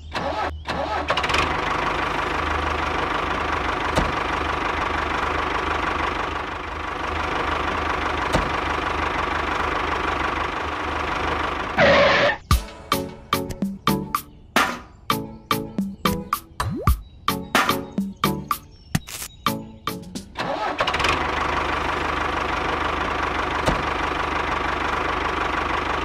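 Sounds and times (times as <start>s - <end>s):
small tractor engine knocking: 1.3s - 11.8s, 20.9s - 26.0s.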